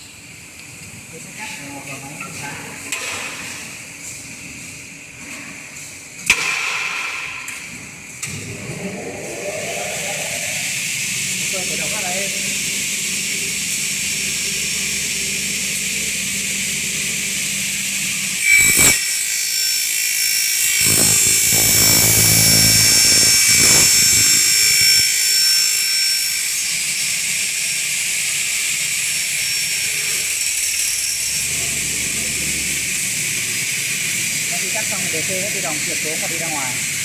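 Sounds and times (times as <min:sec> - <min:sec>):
saw motors whining: 0:14.3 - 0:27.1
saw blades cutting aluminium: 0:18.2 - 0:27.1.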